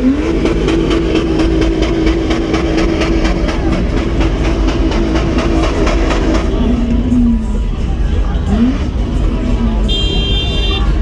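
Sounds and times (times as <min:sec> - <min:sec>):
engine at high revs: 0:00.0 - 0:07.5, 0:08.4 - 0:09.7.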